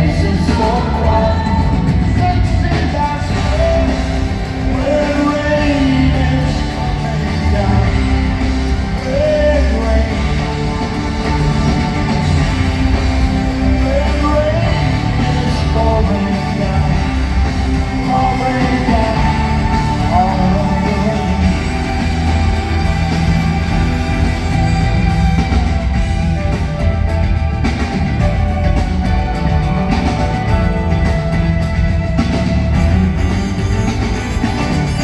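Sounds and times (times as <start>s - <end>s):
lead vocal singing: 0.0s - 26.2s
live rock band: 0.0s - 35.0s.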